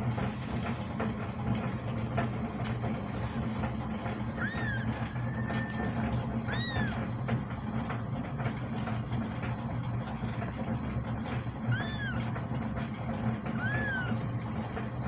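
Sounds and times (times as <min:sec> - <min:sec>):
steady low hum: 0:00.0 - 0:15.0
kitten meowing: 0:04.4 - 0:07.0, 0:11.7 - 0:12.3, 0:13.5 - 0:14.2.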